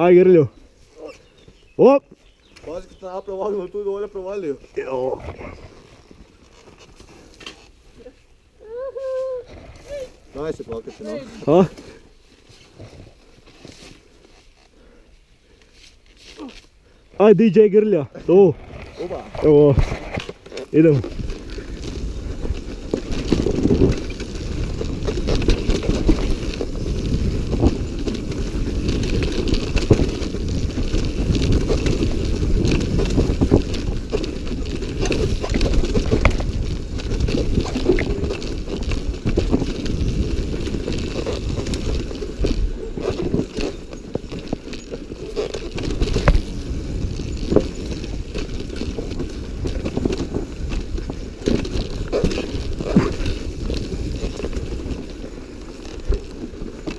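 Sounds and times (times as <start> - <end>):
dirt bike engine: 18.3 - 56.9
wind buffeting microphone: 20.9 - 56.9.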